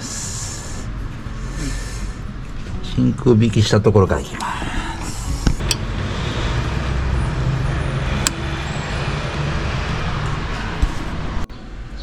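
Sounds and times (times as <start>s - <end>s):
vacuum pump motor drone: 4.1s - 11.5s.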